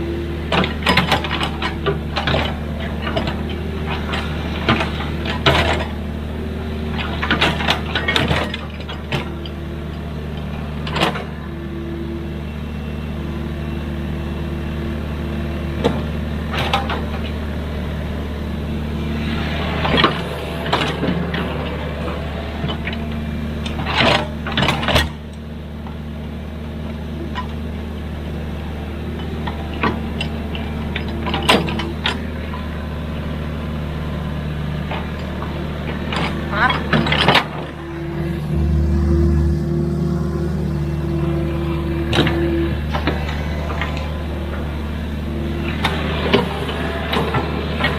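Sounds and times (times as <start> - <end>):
excavator engine running: 0.0 - 47.9.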